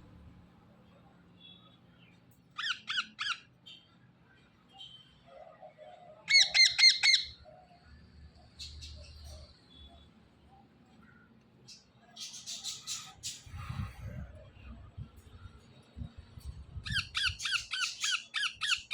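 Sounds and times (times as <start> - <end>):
parrots squawking: 2.6 - 3.4, 6.3 - 7.4, 16.9 - 18.9.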